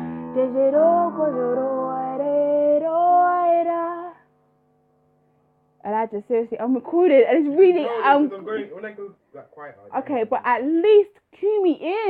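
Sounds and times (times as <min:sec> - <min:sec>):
woman singing wordless melody: 0:00.0 - 0:04.3, 0:05.8 - 0:08.0.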